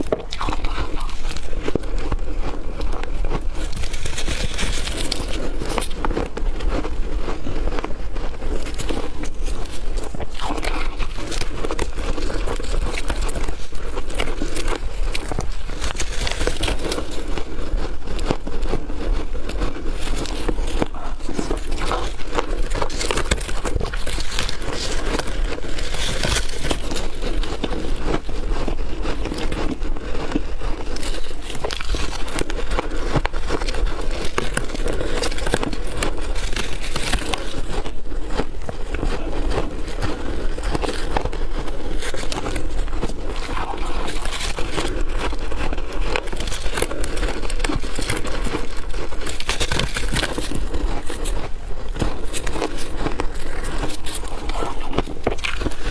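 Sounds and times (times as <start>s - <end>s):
ice being bitten and crunched: 0.0s - 55.9s.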